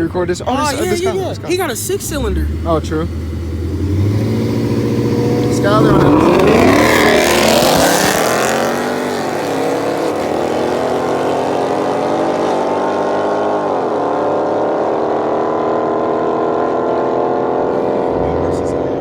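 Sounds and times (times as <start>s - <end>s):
car engine accelerating hard: 0.0s - 19.0s.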